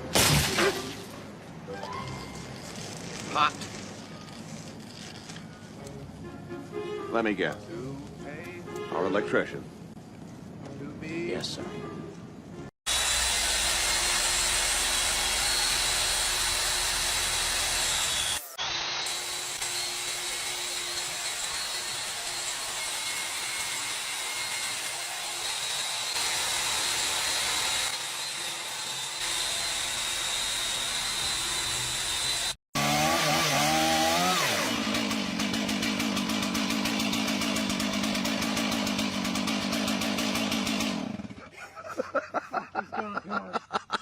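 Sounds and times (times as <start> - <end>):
small engine buzzing at high speed: 12.9 - 21.2, 29.0 - 41.4.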